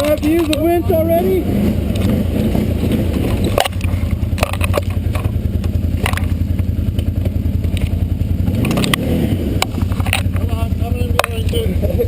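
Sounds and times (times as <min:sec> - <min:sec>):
off-road vehicle engine rumbling: 0:00.0 - 0:12.0
sharp knocks and clatters: 0:01.9 - 0:09.0, 0:09.6 - 0:11.6.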